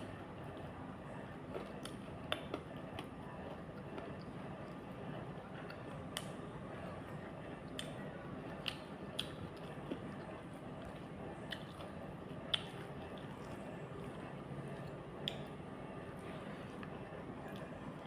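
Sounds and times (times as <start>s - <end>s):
person chewing: 7.7s - 15.6s
mouth smacks and clicks: 11.5s - 13.4s, 14.8s - 15.5s.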